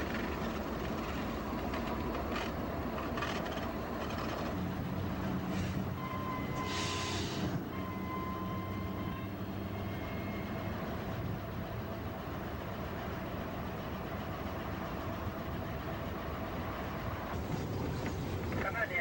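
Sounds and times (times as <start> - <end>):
diesel train engine rumble: 0.0 - 19.0.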